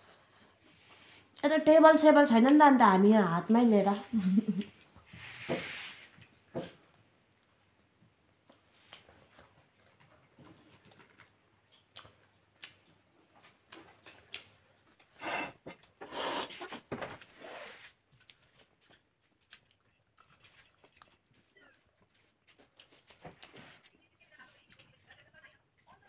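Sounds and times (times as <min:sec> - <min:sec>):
chewing and mouth smacking: 0:06.1 - 0:15.1, 0:18.0 - 0:26.0.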